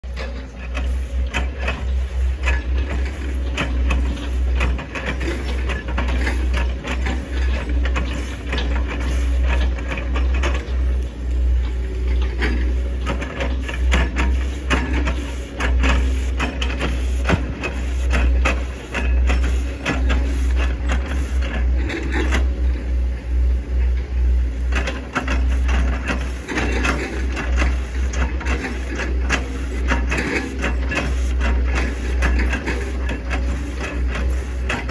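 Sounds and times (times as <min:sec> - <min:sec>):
excavator engine drone: 0:00.0 - 0:34.9.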